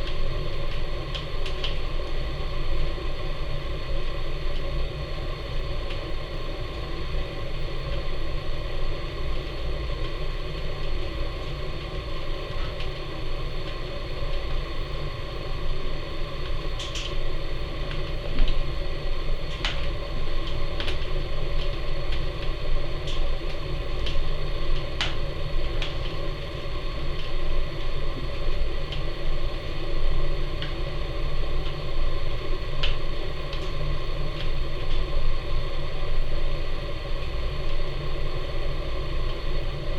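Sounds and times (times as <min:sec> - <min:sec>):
fire crackling and popping: 0:00.0 - 0:01.9, 0:19.3 - 0:29.2
wood fire draft rumble: 0:00.0 - 0:39.9.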